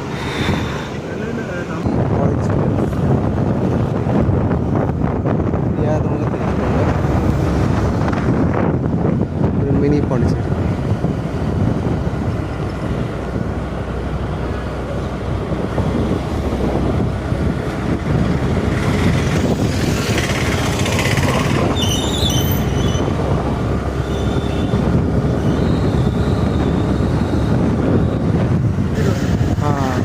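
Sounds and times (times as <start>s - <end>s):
road and traffic noise: 0.0s - 30.0s
wind rushing over microphone: 0.0s - 30.0s.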